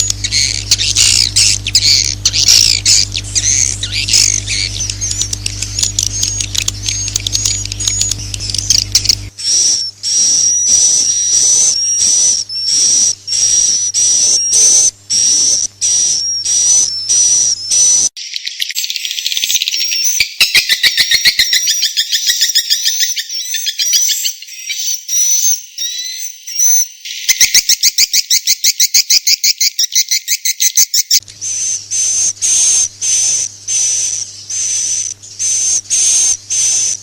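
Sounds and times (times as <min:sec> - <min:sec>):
low steady hum: 0:00.0 - 0:18.1, 0:31.2 - 0:37.0
fast rattling twitter: 0:00.0 - 0:37.0
swiftlet twittering chirps: 0:00.0 - 0:37.0.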